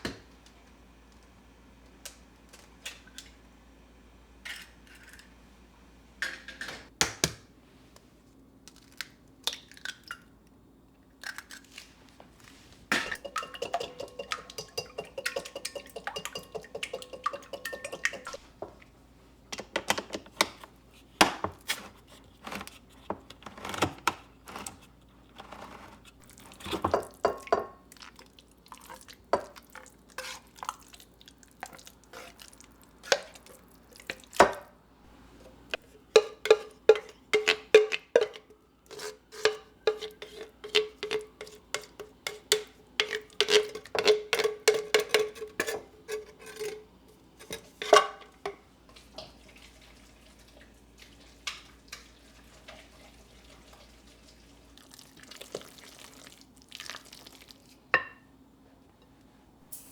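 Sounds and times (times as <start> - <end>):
spoon clinking against dish: 13.0 - 18.4.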